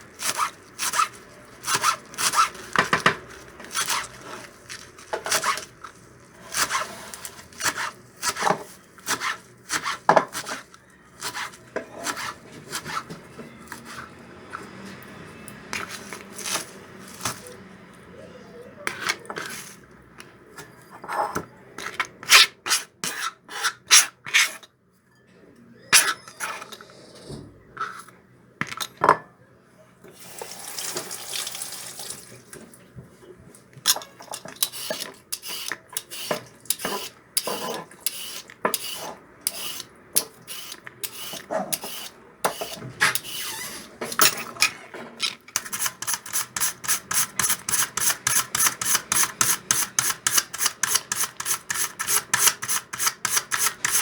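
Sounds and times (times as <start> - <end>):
dishes and utensils clinking: 44.0 - 45.5.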